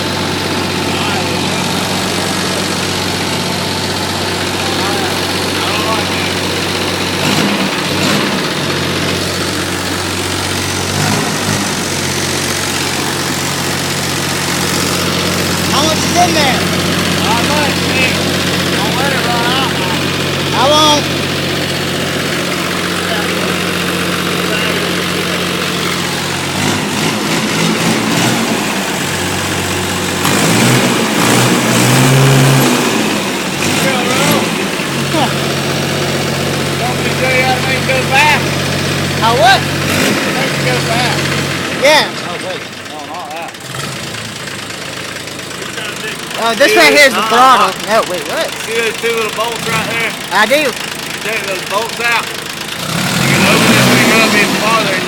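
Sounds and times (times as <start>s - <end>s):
diesel tractor engine idling: 0.0s - 55.0s.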